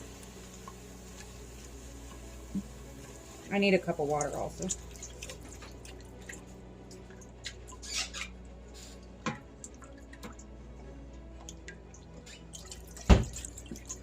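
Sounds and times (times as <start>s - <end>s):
liquid drips and pops: 9.3s - 10.5s, 11.4s - 14.0s.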